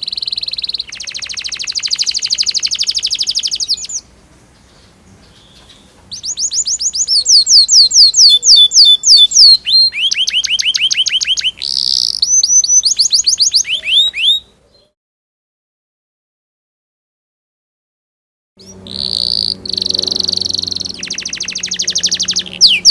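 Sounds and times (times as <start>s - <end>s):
canary singing trills: 0.0s - 15.0s, 18.6s - 22.9s
harsh buzzy bird note: 18.6s - 22.9s.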